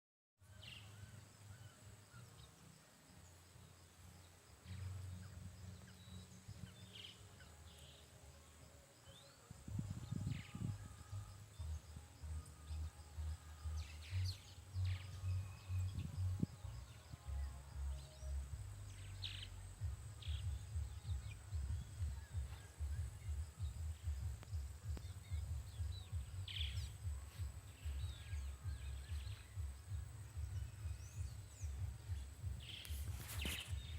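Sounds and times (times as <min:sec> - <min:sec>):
wind buffeting microphone: 0:09.4 - 0:12.0, 0:15.6 - 0:17.4, 0:19.8 - 0:33.9.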